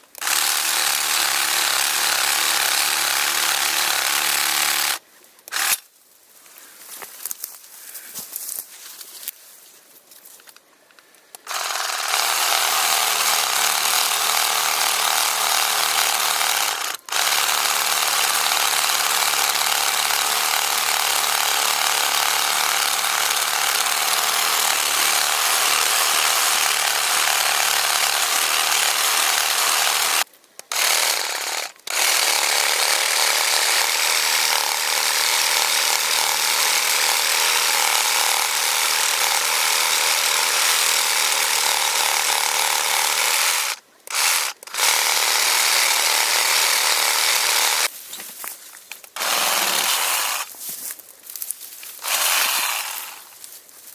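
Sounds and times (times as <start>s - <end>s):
reciprocating saw cutting wood: 0.0s - 5.8s, 11.4s - 47.9s, 49.2s - 50.5s, 52.0s - 53.4s.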